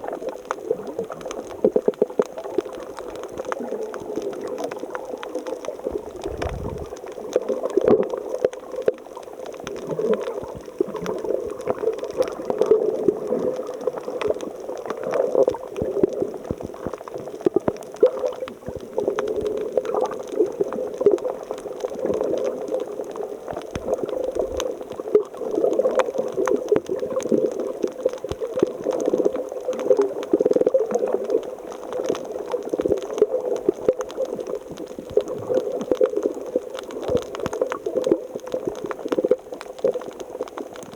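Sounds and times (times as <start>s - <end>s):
small pops and crackles: 0.0s - 40.9s
water gurgling and churning: 5.7s - 7.3s.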